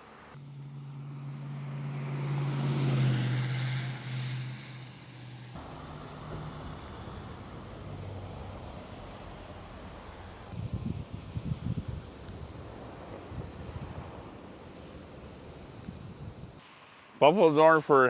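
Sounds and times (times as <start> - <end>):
vehicle engine humming: 0.0 - 16.6
wind noise: 6.3 - 16.7.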